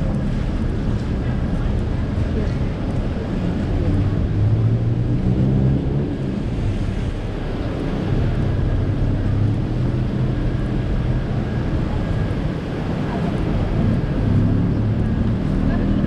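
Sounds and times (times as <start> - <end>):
vehicle engines humming: 0.0 - 16.0.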